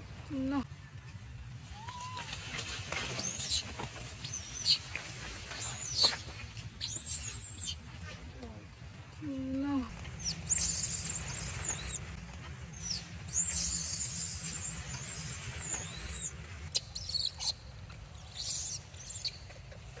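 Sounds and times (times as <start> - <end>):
baby monkey squealing: 3.1 - 4.9, 5.5 - 7.8, 10.2 - 12.0, 12.7 - 17.6, 18.2 - 19.4.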